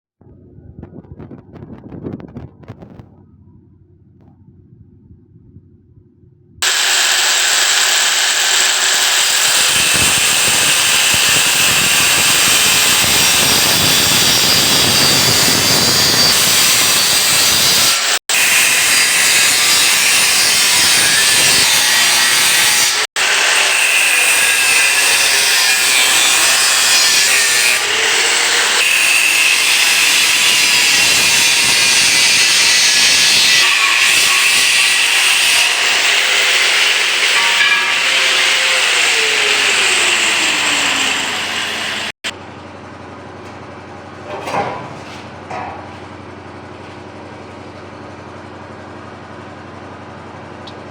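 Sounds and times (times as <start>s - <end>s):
power tool grinding steel: 6.6s - 42.2s.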